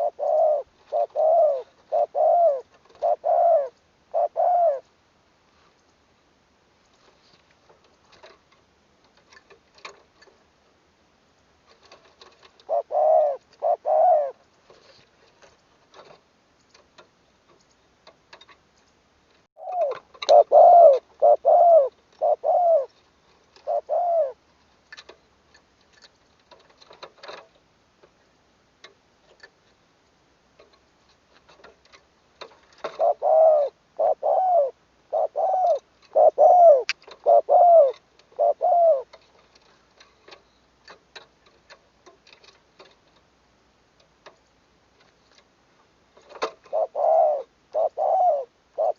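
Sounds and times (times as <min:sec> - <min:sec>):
dove cooing: 0:00.0 - 0:04.9, 0:12.6 - 0:14.4, 0:19.6 - 0:24.4, 0:32.8 - 0:39.2, 0:46.5 - 0:48.9
faint clicks and ticks: 0:05.6 - 0:06.0.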